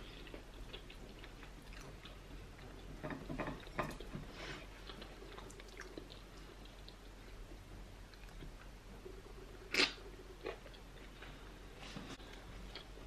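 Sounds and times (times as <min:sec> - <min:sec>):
chewing with wet clicks: 0:00.2 - 0:02.9, 0:04.8 - 0:07.3.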